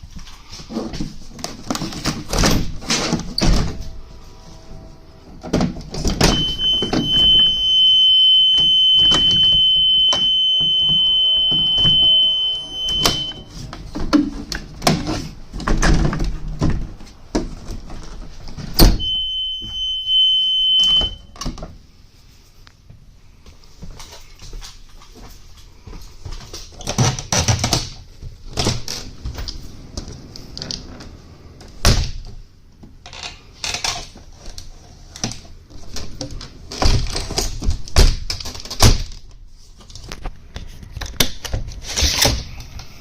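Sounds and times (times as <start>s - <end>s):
high-pitched warning buzzer: 6.2s - 13.5s, 19.0s - 21.2s.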